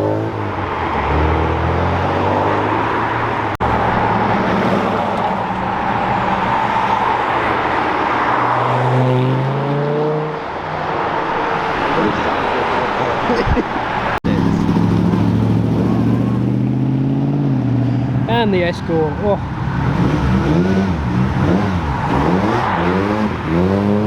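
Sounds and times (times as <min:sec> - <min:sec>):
car engines accelerating: 0:00.0 - 0:24.0
engine revving up: 0:14.1 - 0:17.9, 0:19.6 - 0:24.0.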